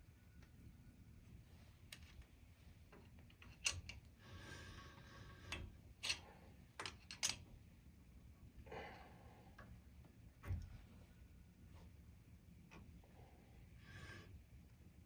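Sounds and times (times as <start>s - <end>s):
tools clicking and knocking: 2.9s - 4.1s, 5.5s - 7.5s.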